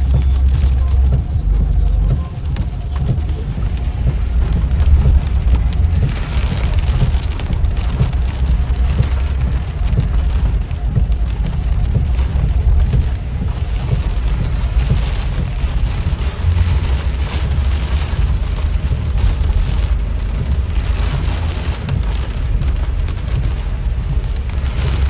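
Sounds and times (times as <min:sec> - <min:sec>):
rain falling: 0:00.0 - 0:25.0
wind buffeting microphone: 0:00.0 - 0:25.0.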